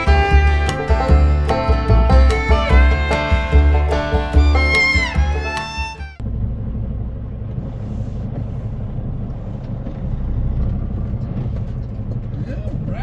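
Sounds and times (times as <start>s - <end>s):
bluegrass music: 0.0s - 6.2s
diesel truck engine running: 0.0s - 12.8s
road rumble: 0.0s - 13.0s.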